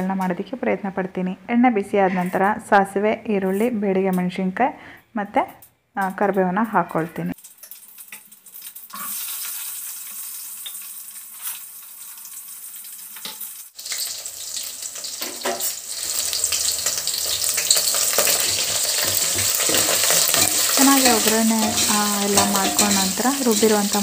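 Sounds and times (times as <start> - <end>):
spices sizzling in hot oil: 7.3 - 24.0.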